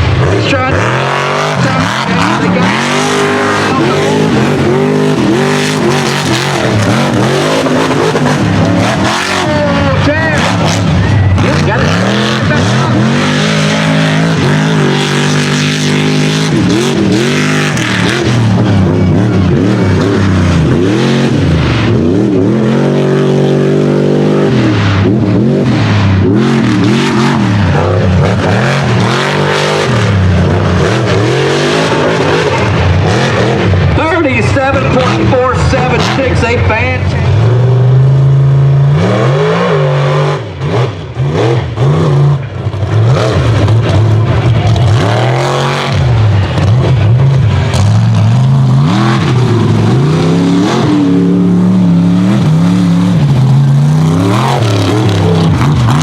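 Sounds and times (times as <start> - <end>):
truck engine revving hard: 0.0 - 56.0.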